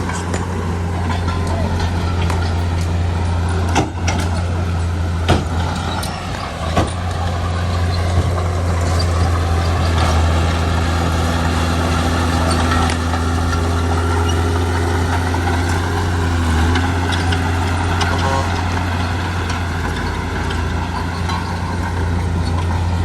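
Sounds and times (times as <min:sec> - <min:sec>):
sharp metallic clanks: 0:00.0 - 0:10.0
heavy diesel engine running: 0:00.0 - 0:23.0.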